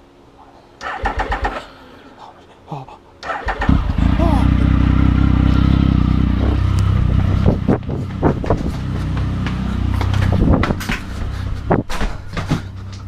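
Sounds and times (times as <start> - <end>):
motorcycle engine idling: 3.6 - 13.0.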